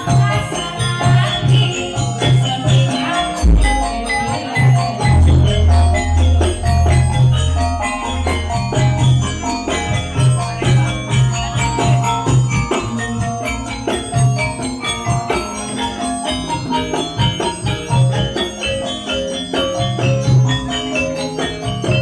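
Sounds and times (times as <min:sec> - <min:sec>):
gamelan metal keys ringing: 0:00.0 - 0:22.0
deep pulsing bass notes: 0:03.4 - 0:04.2, 0:04.8 - 0:12.4.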